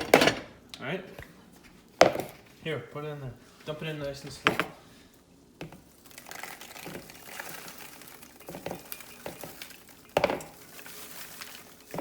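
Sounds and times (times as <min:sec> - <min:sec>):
popcorn pouring into bowl: 0:05.6 - 0:12.0
bag crinkling: 0:05.8 - 0:12.0.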